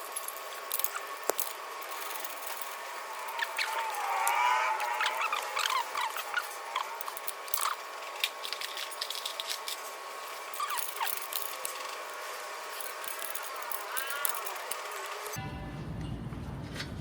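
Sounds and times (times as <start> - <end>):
ratchet wrench clicking: 0.0 - 9.8, 10.5 - 15.4
squeaky chirps: 1.9 - 7.9, 10.5 - 12.0.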